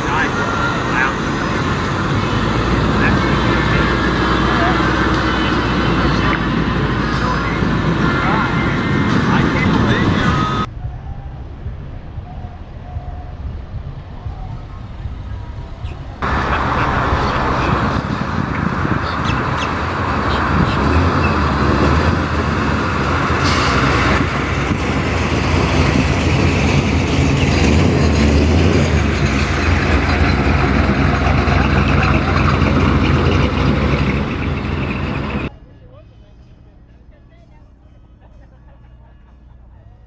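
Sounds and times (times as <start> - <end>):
car engine running: 0.0 - 10.7, 16.2 - 35.5.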